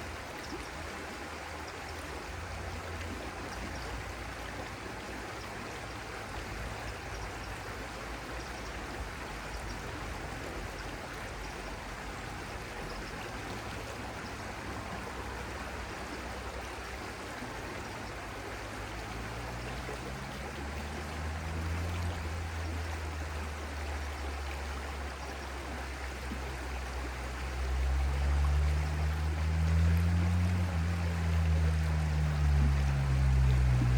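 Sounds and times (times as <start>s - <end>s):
stream flowing: 0.0s - 33.9s
low hum: 27.6s - 33.9s.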